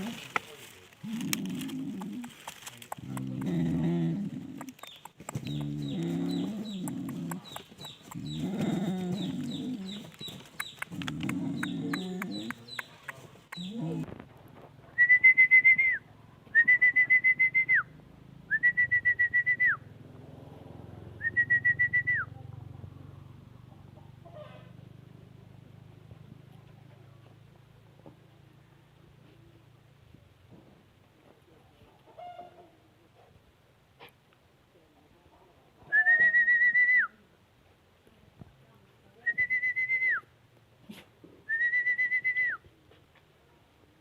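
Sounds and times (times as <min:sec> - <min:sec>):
scuffling clicks: 0:00.0 - 0:03.8, 0:04.4 - 0:14.2
dogs growling: 0:01.0 - 0:14.3.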